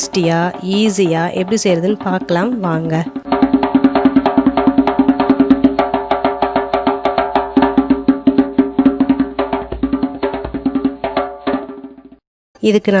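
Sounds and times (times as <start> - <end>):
steady held tones: 0.0 - 10.4
clicking percussion beat: 0.0 - 12.2.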